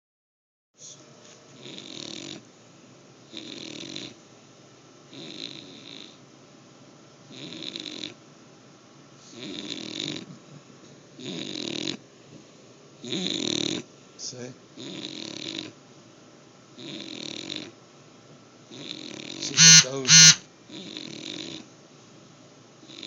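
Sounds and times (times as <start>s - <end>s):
dog snoring: 1.6s - 2.5s, 3.3s - 4.2s, 5.1s - 6.2s, 7.3s - 8.2s, 9.3s - 10.3s, 11.2s - 12.0s, 13.0s - 13.8s, 14.8s - 15.8s, 16.8s - 17.8s, 18.7s - 21.6s.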